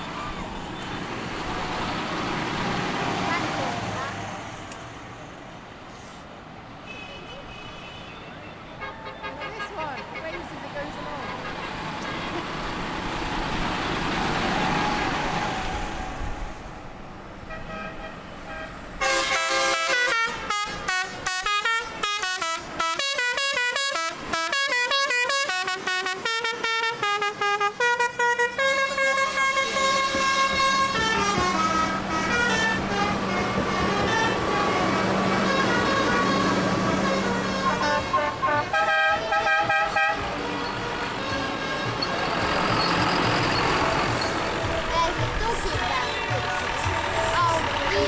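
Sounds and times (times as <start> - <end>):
vehicles passing: 0.0 - 48.0
musical vehicle horn: 6.8 - 12.9, 17.5 - 48.0.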